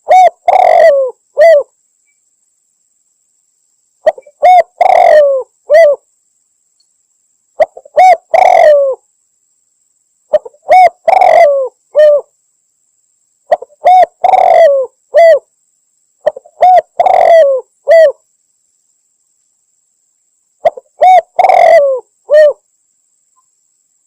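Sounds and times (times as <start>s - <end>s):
dove cooing: 0.0s - 1.7s, 4.0s - 6.0s, 7.6s - 9.0s, 10.3s - 12.3s, 13.5s - 15.5s, 16.2s - 18.2s, 20.6s - 22.6s.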